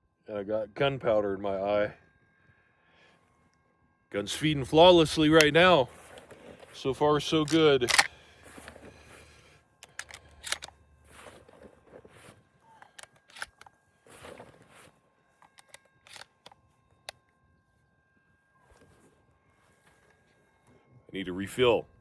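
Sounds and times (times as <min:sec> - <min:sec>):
faint steady high tone: 0:00.0 - 0:22.0
handling clicks and rustles: 0:05.0 - 0:17.2.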